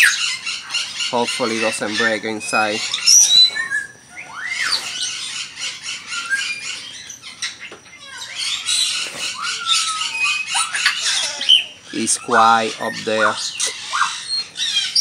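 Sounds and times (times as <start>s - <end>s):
rising whistled bird notes: 0.0s - 7.7s, 8.3s - 15.0s
birds chirping: 0.0s - 15.0s.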